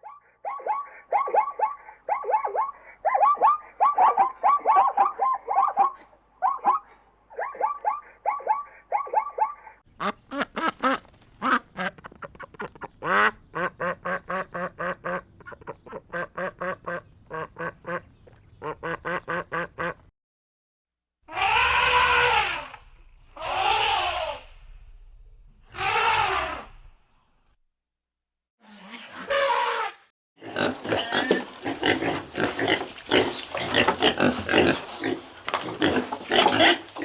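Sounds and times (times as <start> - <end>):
harsh duck calls: 8.0 - 20.1
ducks quacking: 9.6 - 20.1, 30.5 - 37.0.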